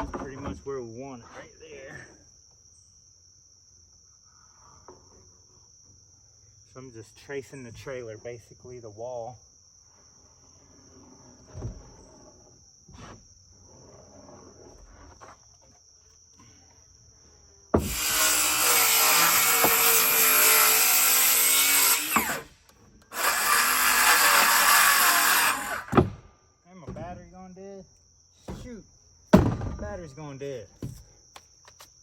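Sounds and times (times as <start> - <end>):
crickets chirping: 0.0 - 18.8, 25.7 - 32.0
circular saw cutting wood: 17.8 - 26.1.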